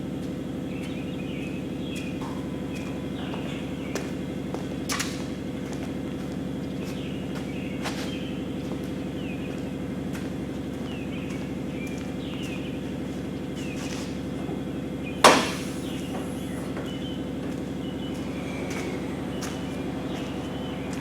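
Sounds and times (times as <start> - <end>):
low machine hum: 0.0 - 21.0
loud sharp bang: 15.2 - 16.1.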